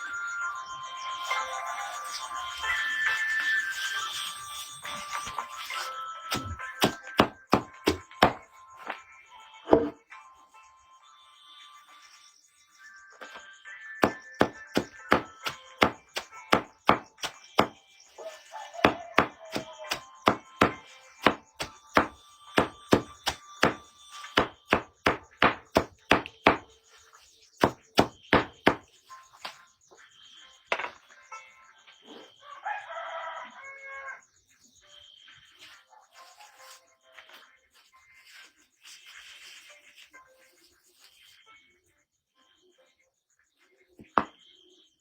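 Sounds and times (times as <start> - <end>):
chopping strikes: 6.3 - 8.5, 14.0 - 17.8, 18.8 - 26.7, 27.6 - 28.9
rooster crowing: 18.2 - 20.4, 32.4 - 34.3.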